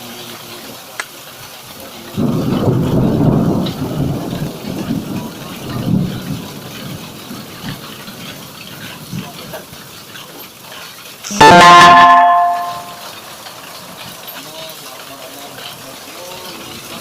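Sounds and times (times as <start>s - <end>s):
rain and hail falling: 0.0s - 17.0s
thunder rumbling: 2.1s - 9.2s.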